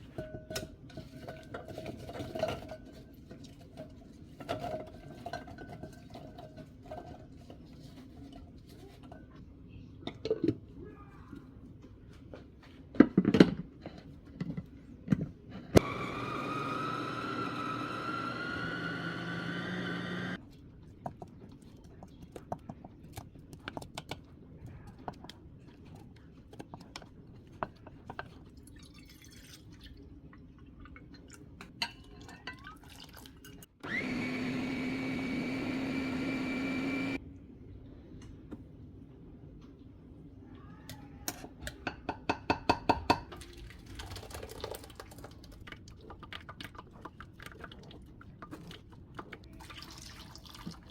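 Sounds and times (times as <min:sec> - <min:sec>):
kitchenware clinks and knocks: 0:00.0 - 0:07.4
water running into container: 0:49.5 - 0:50.9.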